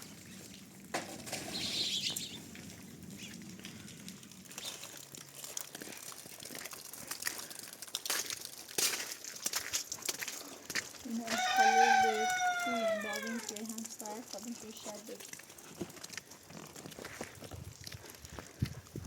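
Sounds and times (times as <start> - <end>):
chickens moving about: 0.4 - 13.8.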